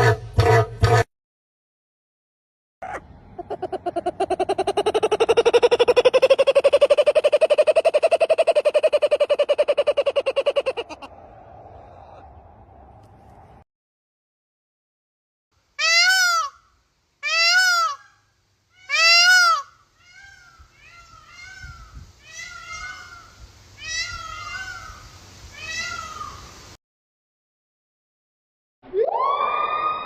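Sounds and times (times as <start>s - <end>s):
background noise: 15.6s - 26.8s
meow-like animal calls: 25.6s - 26.4s.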